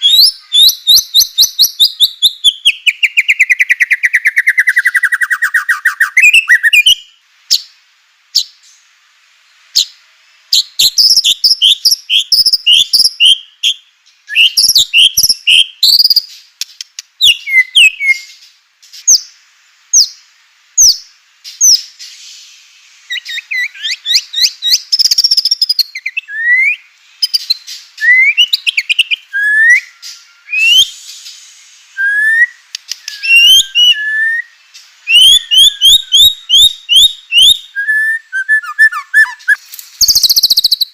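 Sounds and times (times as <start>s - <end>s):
bird whistling song: 0.0s - 8.9s, 9.7s - 19.3s, 19.9s - 20.2s, 20.8s - 40.9s
bird clicking chatter: 15.9s - 17.1s, 32.7s - 33.4s.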